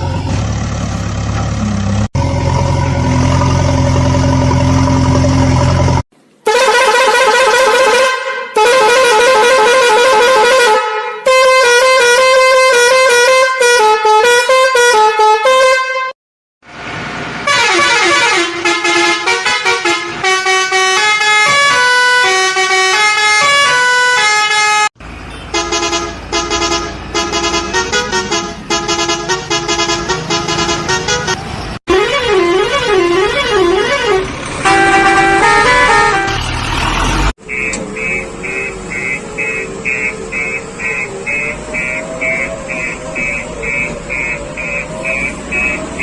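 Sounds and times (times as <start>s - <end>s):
electronic tune with horn-like tone: 17.5s - 36.5s, 37.4s - 46.0s.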